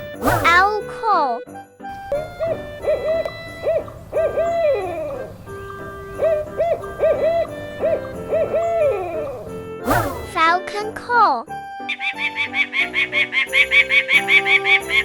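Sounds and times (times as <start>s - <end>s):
owl hooting: 2.2s - 10.4s, 11.9s - 15.0s.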